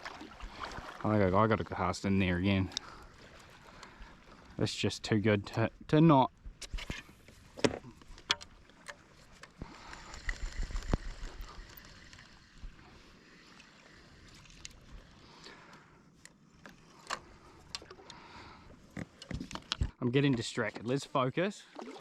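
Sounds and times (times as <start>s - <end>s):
water lapping around kayak: 0.0s - 20.0s, 20.6s - 22.0s
light knocks and clicks of gear: 18.9s - 21.0s.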